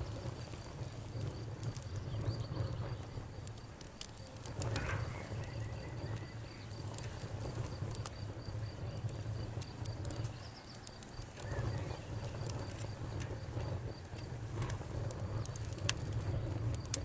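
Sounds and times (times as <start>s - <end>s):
campfire crackling and popping: 0.0s - 17.0s
cricket chirping: 4.6s - 14.1s.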